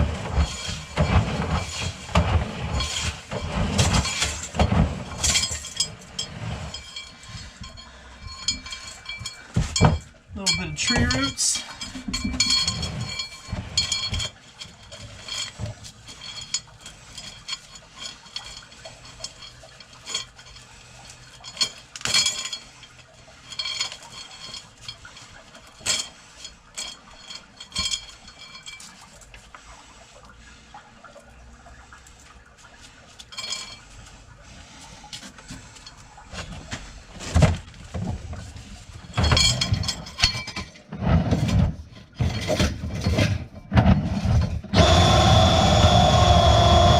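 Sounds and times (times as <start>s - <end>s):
drain snake cable clinking: 0.0s - 46.9s.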